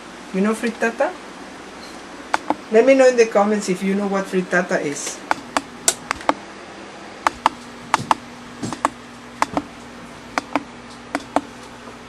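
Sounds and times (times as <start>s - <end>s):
steady low hum: 0.0s - 12.0s
sharp clicks and taps: 2.3s - 2.6s, 5.1s - 6.4s, 7.2s - 11.5s.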